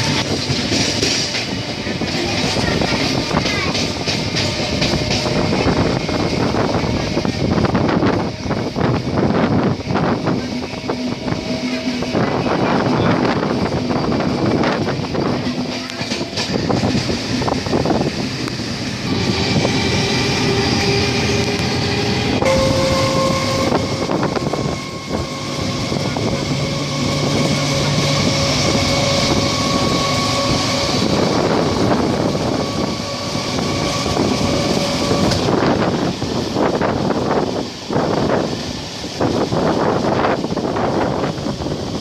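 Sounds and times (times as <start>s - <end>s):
train rumble and rush: 0.0s - 42.0s
whine of held tones: 20.5s - 33.6s.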